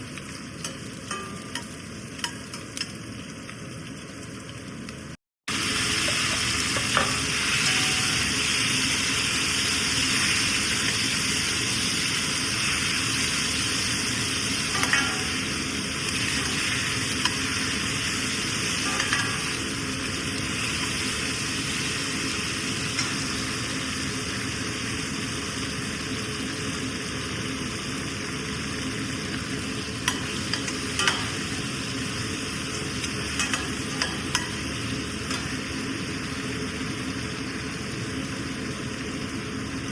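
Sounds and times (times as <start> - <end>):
food sizzling in oil: 0.0 - 39.9
spoon tapping and scraping pan: 14.8 - 15.5, 18.8 - 19.6, 30.0 - 31.6, 33.0 - 34.7.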